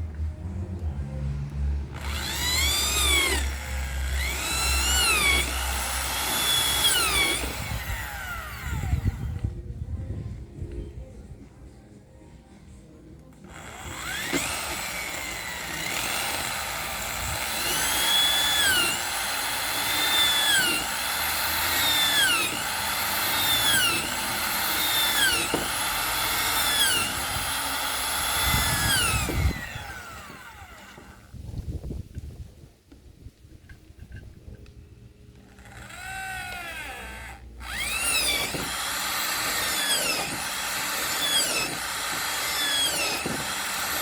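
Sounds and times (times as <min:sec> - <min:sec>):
electric drill motor bogging: 0:01.9 - 0:09.5, 0:13.4 - 0:31.3, 0:35.4 - 0:44.0.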